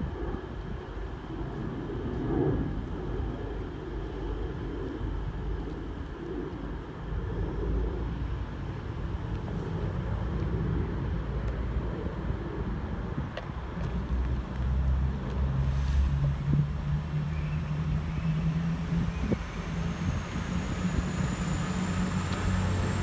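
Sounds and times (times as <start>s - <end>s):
train rumbling: 13.5s - 23.0s.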